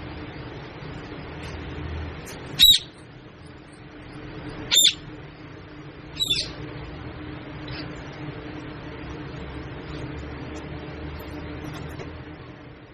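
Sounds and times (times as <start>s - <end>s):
steady background hum: 0.0s - 12.9s
parrot squawking: 2.5s - 3.0s, 4.7s - 5.1s, 6.2s - 6.6s.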